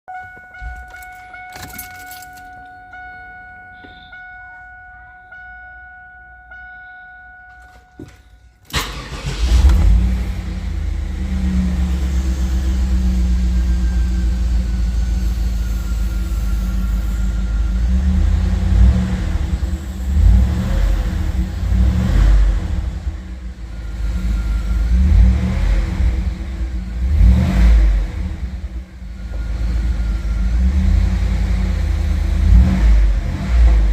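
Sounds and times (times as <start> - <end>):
car engine starting and idling: 0.1 - 4.1, 7.6 - 33.9
engine revving: 8.7 - 33.9.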